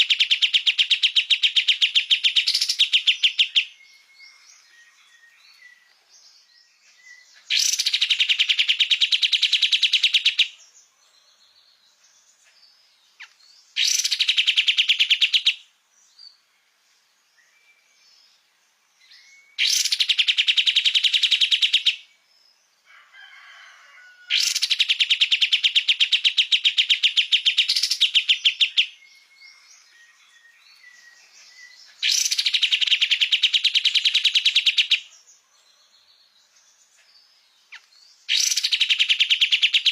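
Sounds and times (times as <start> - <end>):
bird singing rapid trills: 0.0 - 10.8, 12.2 - 22.6, 24.3 - 35.4, 36.2 - 39.9
faint bird calls: 23.0 - 36.1.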